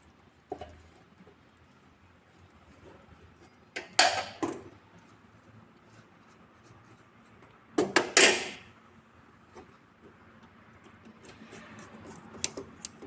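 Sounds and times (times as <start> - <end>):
clicks and scraping of cables: 9.5 - 13.0.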